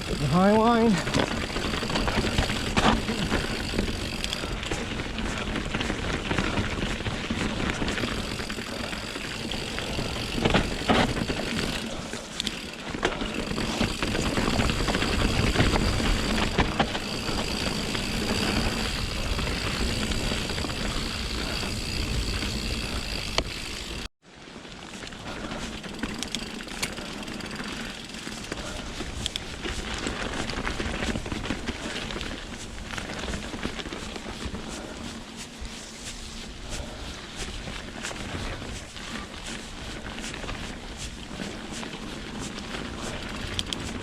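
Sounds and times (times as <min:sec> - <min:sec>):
bike tyre rumble on rocky trail: 0:00.0 - 0:44.0
bike knocks and rattles: 0:00.2 - 0:24.1.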